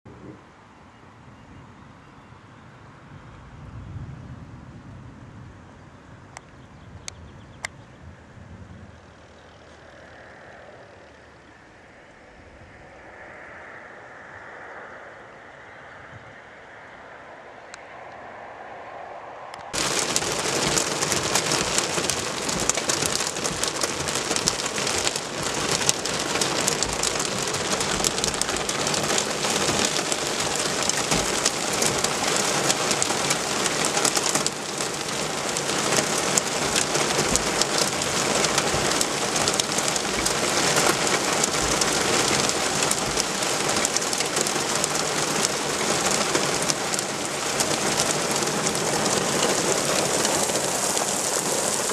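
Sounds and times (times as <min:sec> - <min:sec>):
hail and heavy rain pelting: 0:19.7 - 0:51.9.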